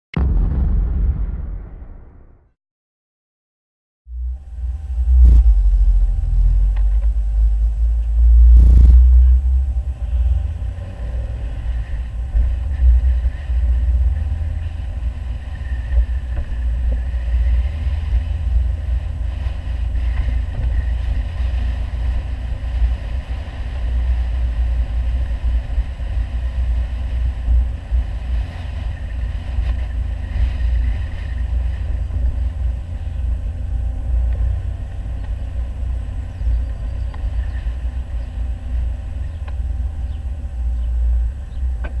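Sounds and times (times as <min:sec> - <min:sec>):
loud thump: 0:00.1 - 0:02.6
car engine rumbling: 0:04.1 - 0:42.0.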